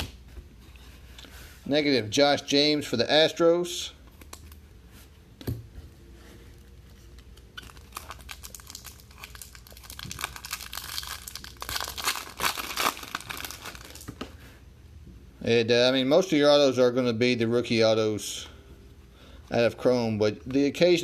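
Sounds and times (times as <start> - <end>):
foil wrapper crinkling and tearing: 7.4 - 14.1.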